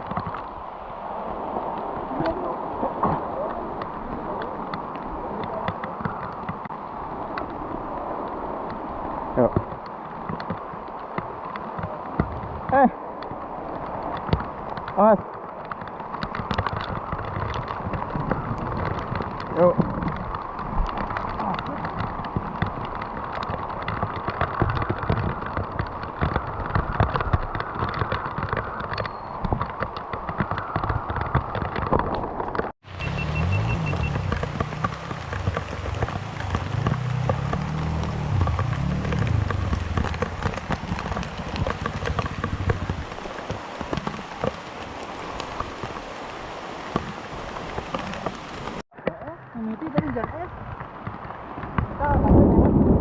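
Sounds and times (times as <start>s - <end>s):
rain falling: 0.0s - 53.0s
motorcycle engine revving: 32.9s - 43.0s.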